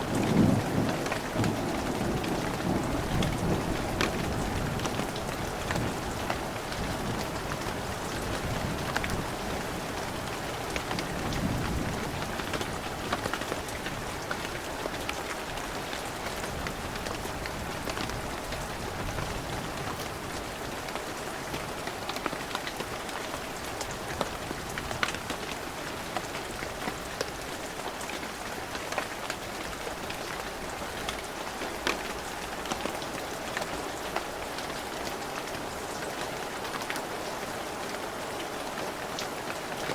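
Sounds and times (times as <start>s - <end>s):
low rumble of thunder: 0.0s - 7.2s
heavy rain falling: 0.0s - 39.9s
raindrops pattering: 0.0s - 39.9s.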